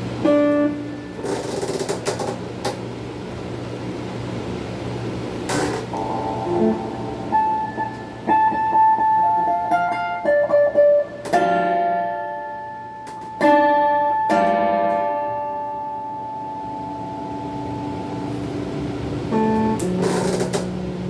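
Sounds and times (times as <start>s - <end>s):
electric guitar playing: 0.0s - 2.8s, 5.2s - 21.0s.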